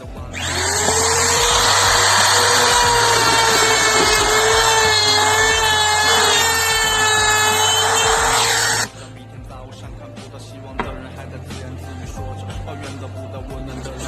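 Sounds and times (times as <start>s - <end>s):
power tool whining and grinding: 0.0s - 8.9s.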